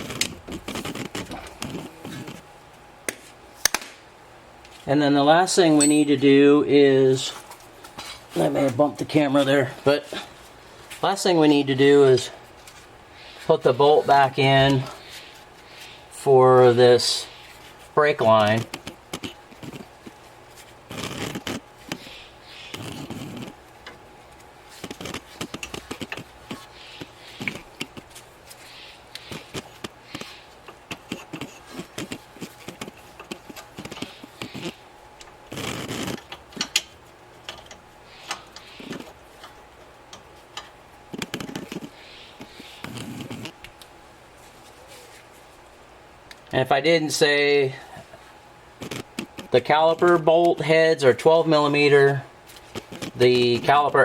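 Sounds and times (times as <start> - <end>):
hand tools clicking and scraping on metal: 0.0 - 2.4, 22.7 - 43.8.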